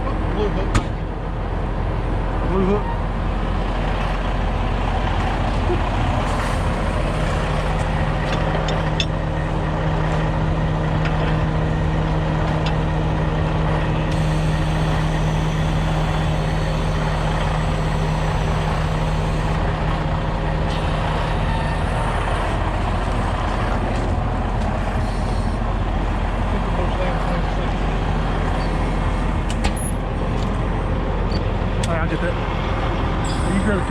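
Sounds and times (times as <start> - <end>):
diesel truck engine running: 0.0 - 33.9
steady hum: 14.1 - 26.4.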